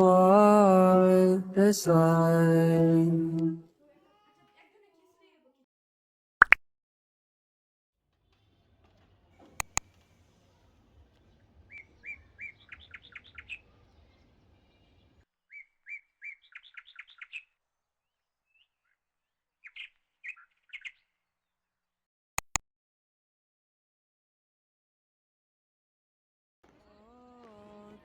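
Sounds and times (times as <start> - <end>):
sharp clicks: 9.6 - 9.8, 22.4 - 22.6
songbird singing: 11.7 - 14.2, 15.5 - 17.5, 19.6 - 21.1.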